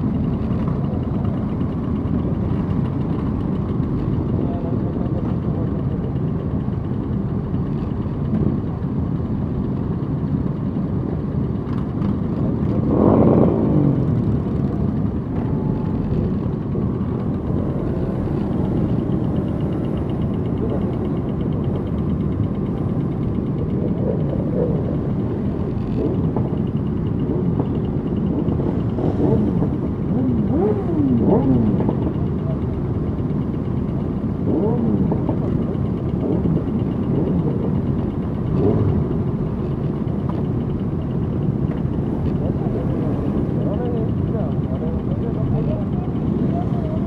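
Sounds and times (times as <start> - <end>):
motorcycle engines running: 0.0 - 47.0
motorcycle engine revving: 11.5 - 47.0.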